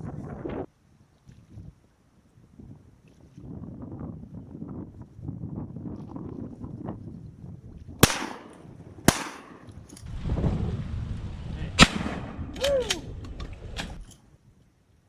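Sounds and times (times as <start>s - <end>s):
wind buffeting microphone: 0.0s - 14.6s
shotgun shots: 8.0s - 9.9s, 11.8s - 12.6s.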